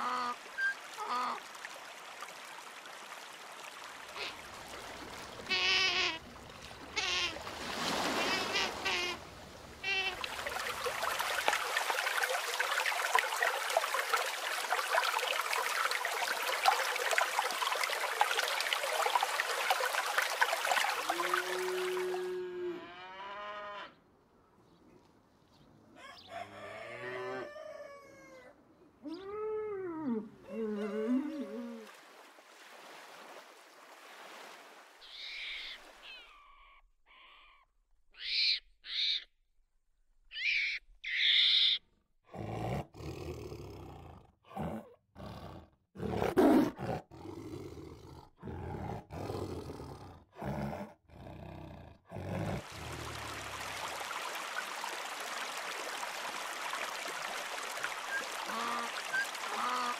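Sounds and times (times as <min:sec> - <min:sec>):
stream running over stones: 0:00.0 - 0:22.4, 0:52.4 - 0:59.9
loud animal calls: 0:40.3 - 0:41.8.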